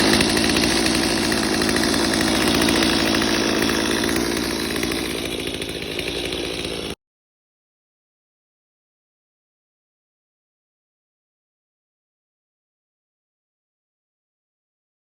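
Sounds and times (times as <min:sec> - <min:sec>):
chainsaw cutting wood: 0:00.0 - 0:07.0.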